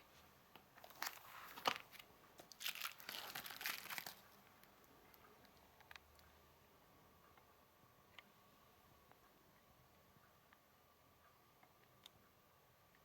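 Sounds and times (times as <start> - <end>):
plastic packaging crinkling: 0.8 - 4.3.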